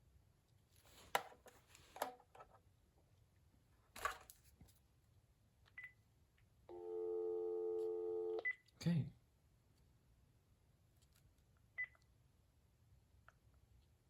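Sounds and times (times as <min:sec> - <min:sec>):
phone dial tone: 0:06.7 - 0:08.5.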